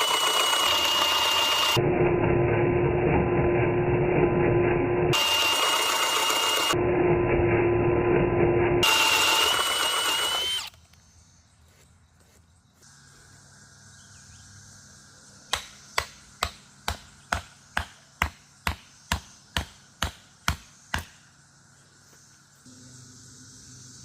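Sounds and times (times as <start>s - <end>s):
wood chopping strikes: 15.5s - 21.2s.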